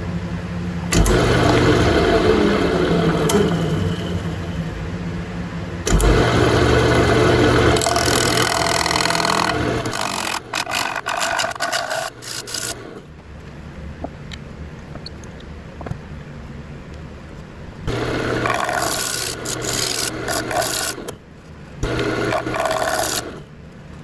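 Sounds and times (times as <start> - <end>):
lathe motor hum: 0.0 - 14.0, 17.1 - 24.0
tool scraping wood: 5.9 - 13.1, 17.9 - 21.2, 21.8 - 23.4
tool cutting wood hiss: 6.9 - 13.0, 17.9 - 21.2, 21.8 - 23.4.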